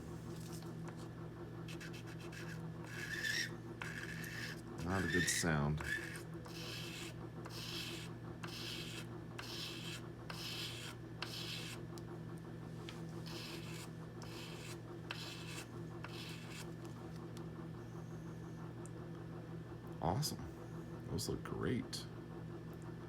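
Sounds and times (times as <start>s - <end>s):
steady low hum: 0.0s - 23.0s
tweezers scraping on sandpaper: 1.7s - 11.8s, 13.2s - 16.7s.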